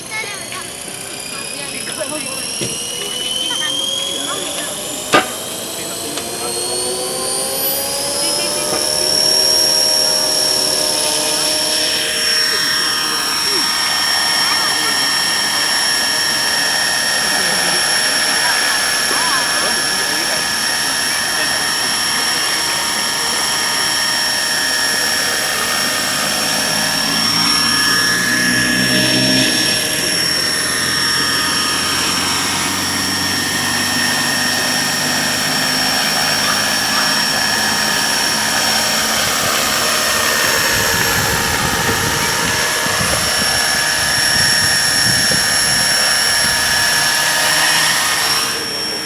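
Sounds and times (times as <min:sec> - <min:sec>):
rc helicopter motor whine: 0:00.0 - 0:49.0
rotor blade noise: 0:00.0 - 0:49.0.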